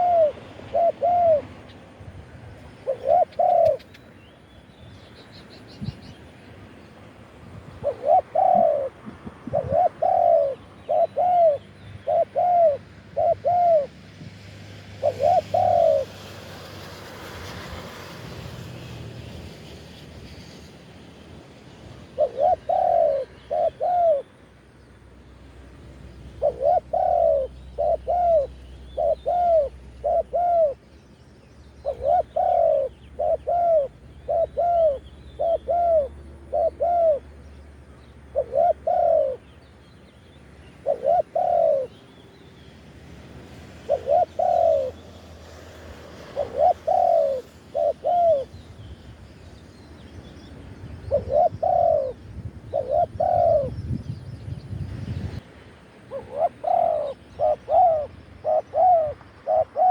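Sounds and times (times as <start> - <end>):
dove cooing: 0.0 - 1.6, 2.8 - 4.0, 7.8 - 14.1, 14.8 - 16.2, 22.2 - 24.3, 26.4 - 30.8, 31.8 - 37.3, 38.3 - 39.5, 40.8 - 42.0, 43.8 - 45.0, 46.2 - 48.6, 51.0 - 53.9, 56.1 - 59.9.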